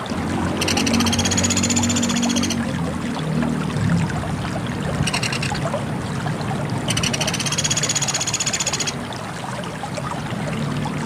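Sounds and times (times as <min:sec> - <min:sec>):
woodpecker trill: 0:00.6 - 0:02.6, 0:05.1 - 0:05.6, 0:06.9 - 0:09.0.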